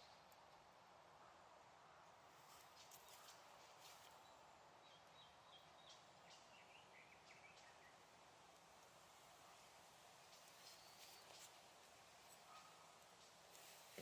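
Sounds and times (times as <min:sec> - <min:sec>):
faint bird chirps: 0:09.4 - 0:14.0.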